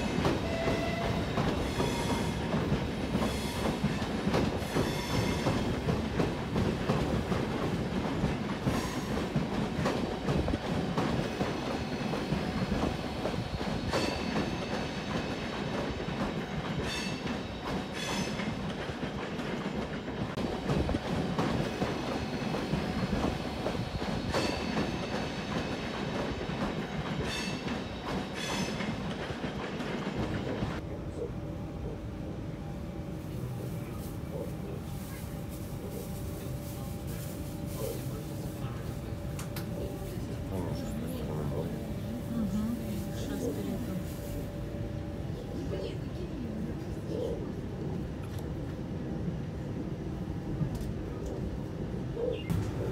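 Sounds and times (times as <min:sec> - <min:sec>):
wheels rumbling on rail: 0:00.0 - 0:52.9.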